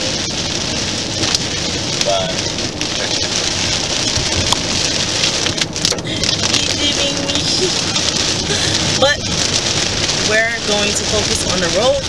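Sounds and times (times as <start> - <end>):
rain on car roof: 0.0 - 12.0
road noise inside car: 0.0 - 12.0.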